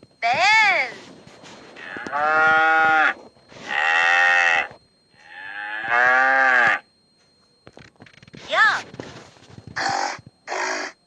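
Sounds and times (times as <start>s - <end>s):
bull mooing: 1.8s - 6.8s, 9.8s - 11.0s.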